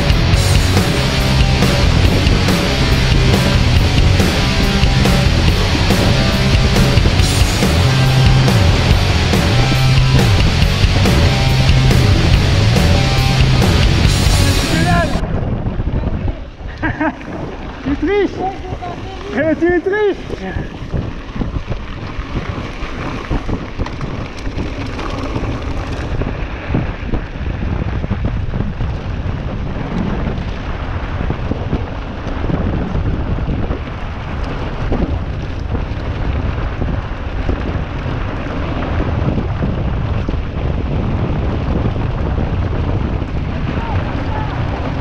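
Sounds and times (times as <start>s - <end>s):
bike rattling: 0.0s - 45.0s
wind buffeting microphone: 0.0s - 45.0s
bike tyres crunching on gravel: 17.0s - 45.0s.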